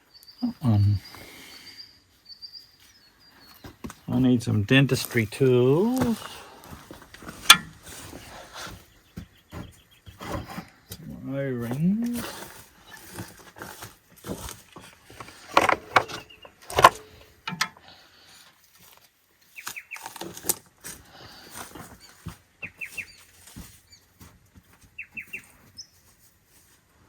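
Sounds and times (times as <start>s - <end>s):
small bird chirping: 0.0s - 4.2s, 8.6s - 10.2s, 16.1s - 17.2s, 19.5s - 20.2s, 22.0s - 24.2s, 25.0s - 26.1s
tools clinking and knocking: 5.8s - 8.2s, 11.7s - 17.9s.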